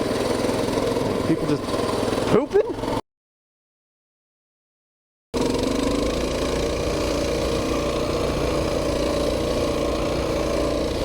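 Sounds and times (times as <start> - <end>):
mini bike engine running: 0.0 - 3.0, 5.4 - 11.0.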